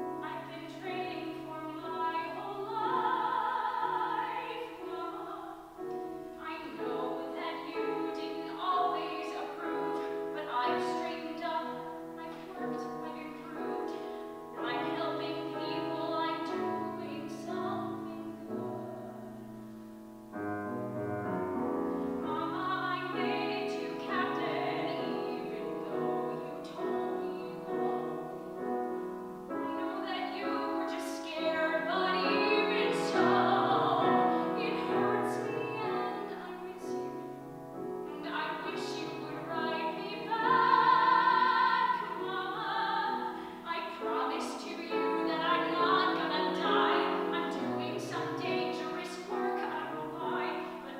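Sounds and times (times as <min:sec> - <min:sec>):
piano accompaniment: 0:00.0 - 0:50.9
musical theatre singing: 0:22.3 - 0:37.4, 0:38.1 - 0:50.9.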